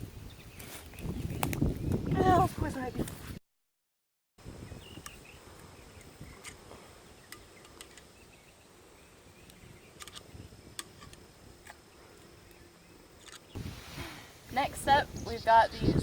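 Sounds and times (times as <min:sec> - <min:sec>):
insects buzzing: 0:04.4 - 0:16.0.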